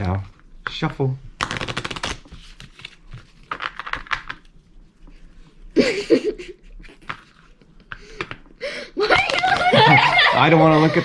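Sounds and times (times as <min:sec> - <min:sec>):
playing cards shuffling: 0:00.0 - 0:05.5, 0:06.8 - 0:08.5.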